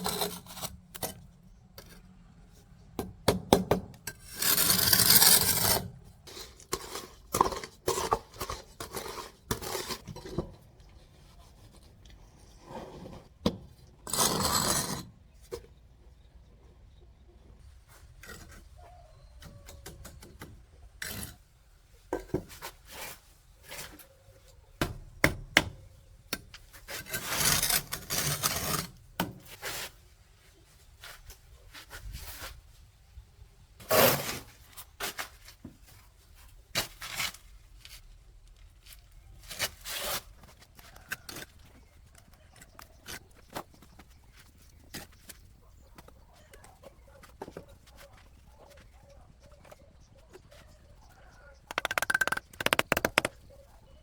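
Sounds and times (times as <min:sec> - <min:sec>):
objects scraping and rubbing: 0:00.0 - 0:01.2, 0:04.2 - 0:10.4, 0:51.6 - 0:53.6
rasping scrape: 0:00.0 - 0:01.2, 0:04.1 - 0:10.3, 0:14.1 - 0:15.1, 0:26.9 - 0:28.9, 0:51.7 - 0:53.4.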